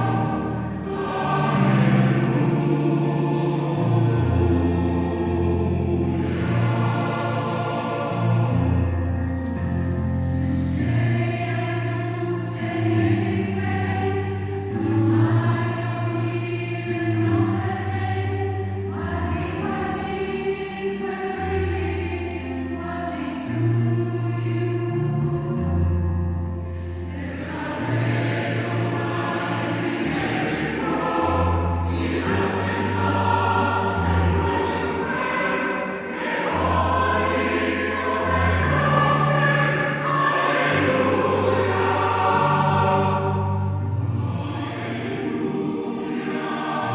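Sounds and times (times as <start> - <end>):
choir singing: 0.0 - 46.9.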